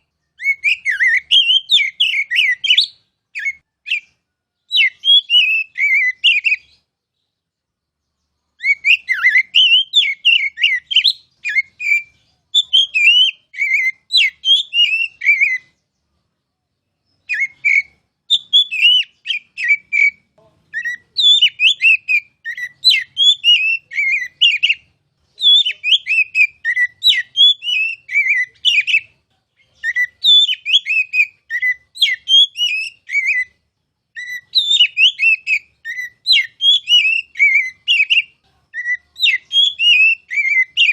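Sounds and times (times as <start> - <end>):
bird singing varied whistled notes: 0.0 - 40.9.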